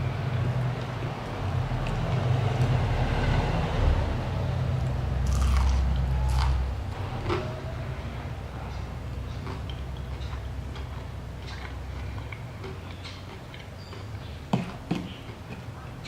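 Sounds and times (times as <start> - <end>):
low steady rumble: 0.0 - 16.0
biting and chewing food: 4.8 - 16.0
crisp crunches: 5.2 - 6.6.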